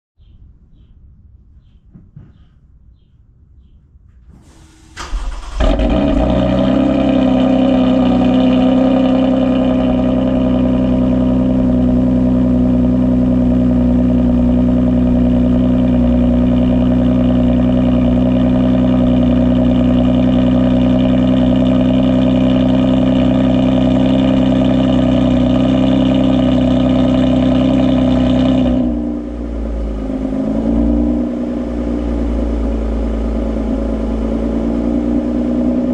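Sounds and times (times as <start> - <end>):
car engine idling: 4.6 - 35.9
engine cranking: 5.0 - 6.8.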